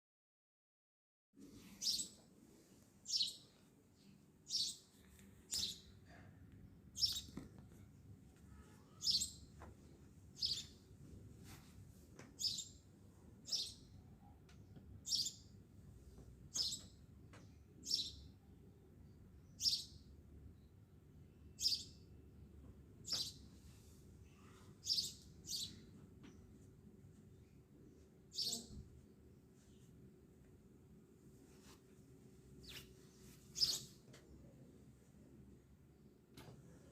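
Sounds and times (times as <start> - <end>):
low background hum: 1.4 - 36.9
bird chirping: 1.8 - 2.2, 3.0 - 6.0, 7.0 - 7.4, 8.5 - 9.5, 10.4 - 10.8, 12.4 - 12.8, 13.5 - 14.0, 15.0 - 15.5, 16.5 - 18.4, 19.4 - 20.0, 21.6 - 22.1, 23.0 - 23.5, 24.4 - 26.5, 28.3 - 28.8, 32.6 - 34.0.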